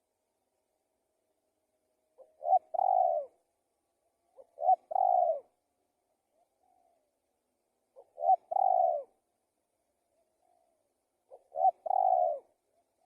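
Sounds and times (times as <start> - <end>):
dove cooing: 2.2 - 3.4, 4.3 - 5.6, 6.3 - 7.2, 7.9 - 9.2, 10.1 - 13.0.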